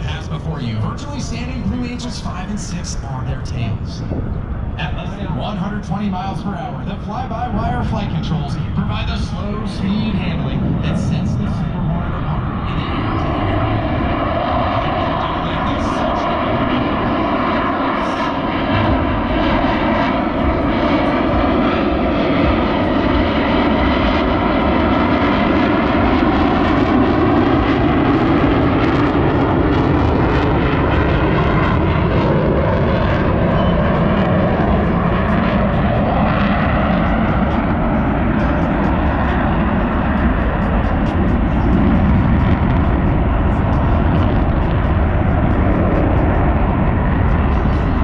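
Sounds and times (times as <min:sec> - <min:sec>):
jet engines roaring: 0:00.0 - 0:48.0.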